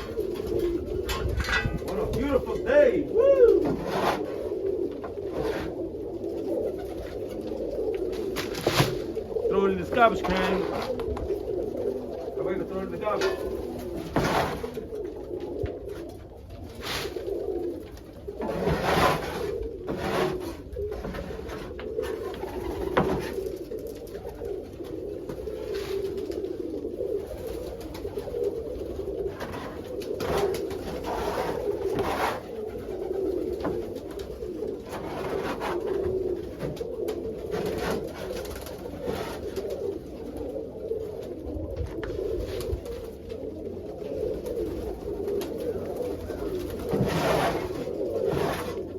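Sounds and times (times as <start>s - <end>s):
knocks and scrapes: 0.0s - 2.7s, 3.6s - 4.4s, 5.0s - 5.8s, 9.9s - 11.2s, 13.0s - 14.8s, 18.4s - 23.5s, 29.3s - 32.6s, 34.8s - 36.8s, 37.4s - 39.6s, 46.7s - 48.9s
pigeons cooing: 0.0s - 48.9s.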